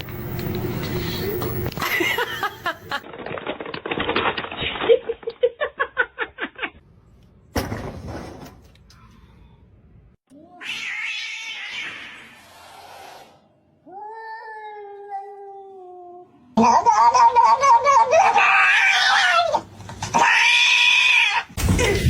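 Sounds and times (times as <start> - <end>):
cat meowing and yowling: 10.5 - 12.4, 13.8 - 16.3, 17.6 - 19.6.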